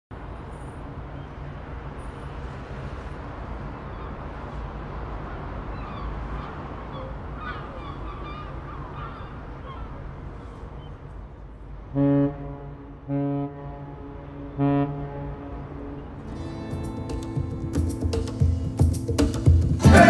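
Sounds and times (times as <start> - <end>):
birds calling harshly: 5.6 - 11.0.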